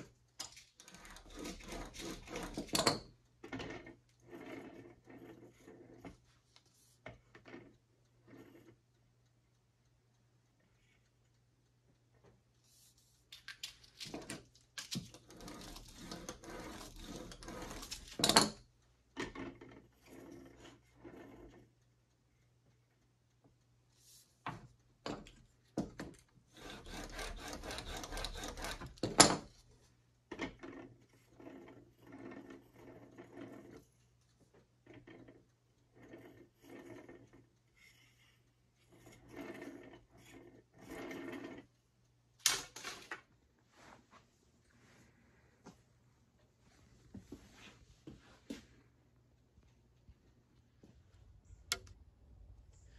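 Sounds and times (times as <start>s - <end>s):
wood scraping on workbench: 0.8s - 3.0s, 15.3s - 18.4s, 26.6s - 29.6s.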